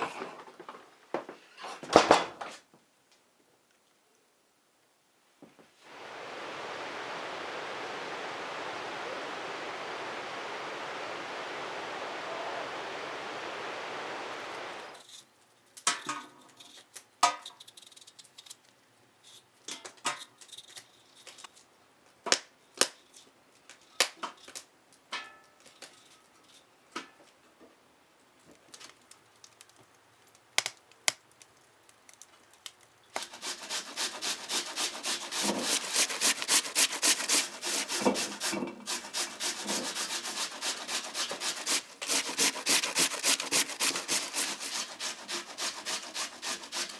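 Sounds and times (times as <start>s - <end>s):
rain hissing: 5.8s - 15.0s, 33.2s - 46.9s
clicks and knocks of handling potatoes: 28.4s - 33.3s
potato rasping on metal grater: 33.2s - 46.9s.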